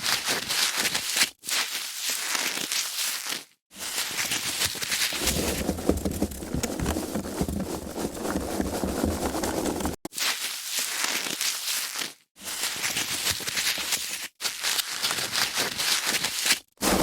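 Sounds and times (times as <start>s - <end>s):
foam packaging crackling: 4.8s - 10.1s.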